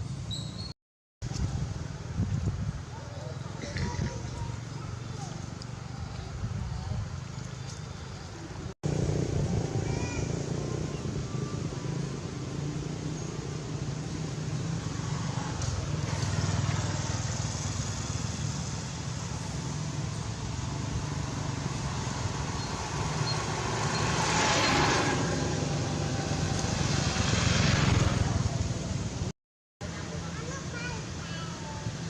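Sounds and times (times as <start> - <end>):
traffic engine hum: 0.0 - 32.0
vehicle passing: 8.8 - 29.3.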